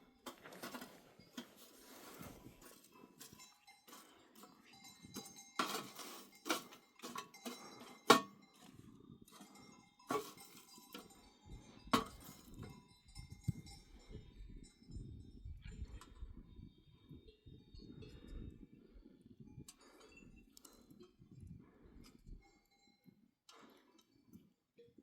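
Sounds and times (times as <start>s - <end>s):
sheep bells clanking: 0.0s - 25.0s.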